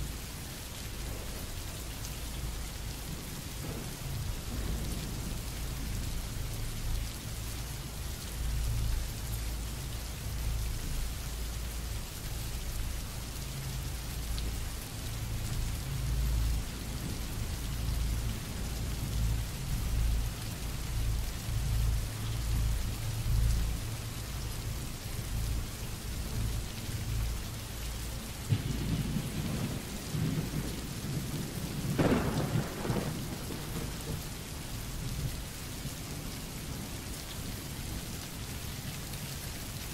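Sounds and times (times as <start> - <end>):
steady rain: 0.0 - 39.9
thunder rumbling: 3.0 - 6.9, 28.5 - 35.3
loud thunder peal: 31.8 - 34.2.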